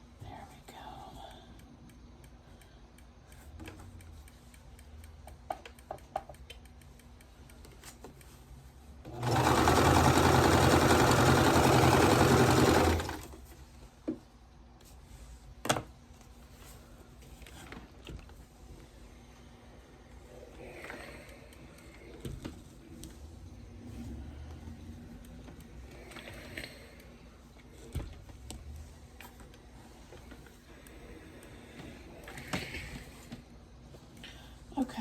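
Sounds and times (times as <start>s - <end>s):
electric sewing machine stitching: 9.1s - 13.4s.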